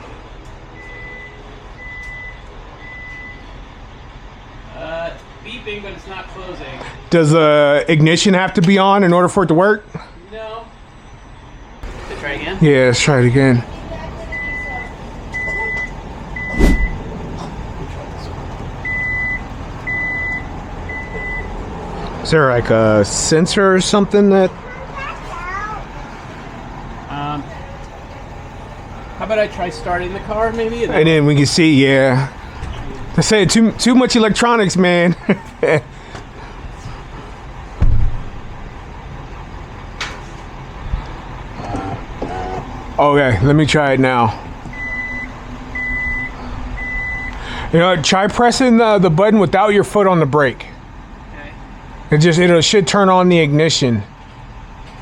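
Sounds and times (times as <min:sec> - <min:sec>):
high-pitched warning beeps: 0:00.8 - 0:03.6, 0:14.2 - 0:17.1, 0:18.8 - 0:21.6, 0:44.7 - 0:47.6
thump: 0:16.5 - 0:17.1, 0:37.8 - 0:38.4.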